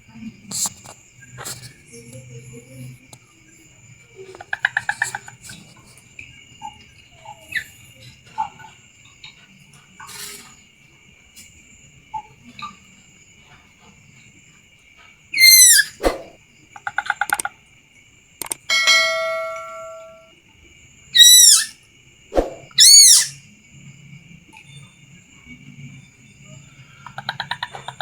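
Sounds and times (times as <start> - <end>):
young bird calling: 15.4 - 16.4, 21.2 - 21.7, 22.7 - 23.4.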